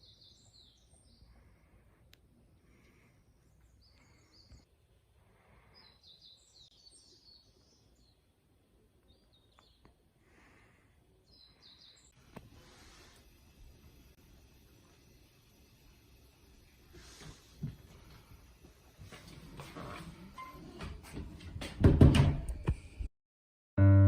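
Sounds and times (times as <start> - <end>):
songbird chirps: 0.0 - 1.7, 5.6 - 10.0, 11.2 - 12.8.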